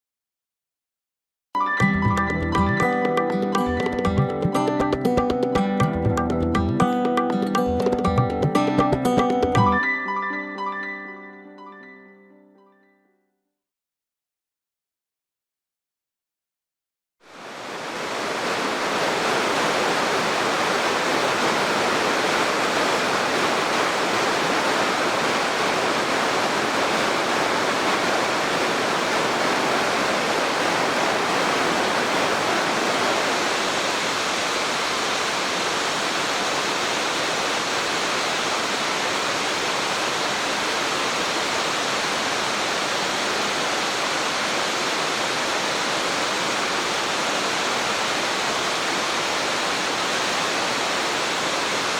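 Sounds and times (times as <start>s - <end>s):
waterfall rushing: 17.3s - 51.9s.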